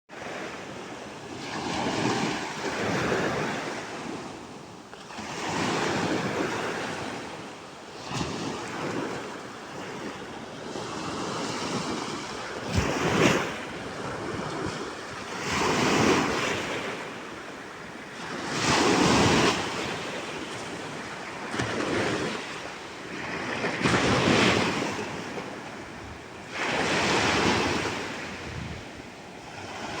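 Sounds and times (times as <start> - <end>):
sea waves splashing on shore: 10.8 - 30.0.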